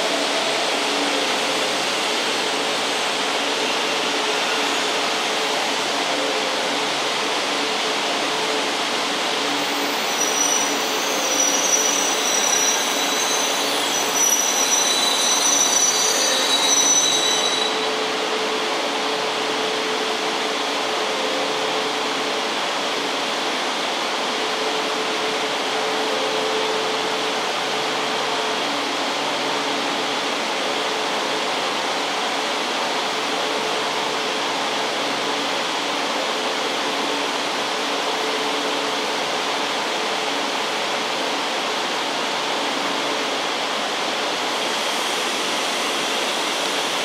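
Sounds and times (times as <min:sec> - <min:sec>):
train rumble and hum: 0:00.0 - 0:47.0
train squealing: 0:09.4 - 0:22.0.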